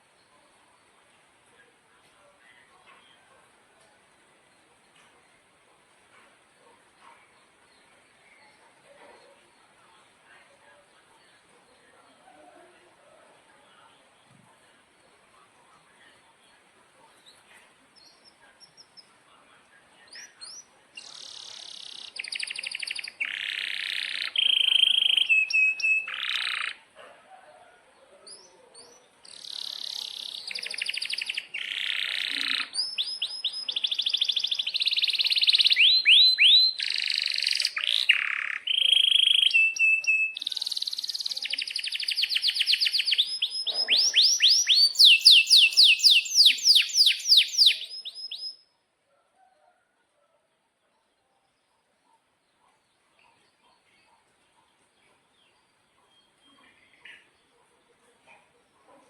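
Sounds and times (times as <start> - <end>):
canary singing trills: 16.5 - 19.2, 20.0 - 26.9, 28.3 - 48.7.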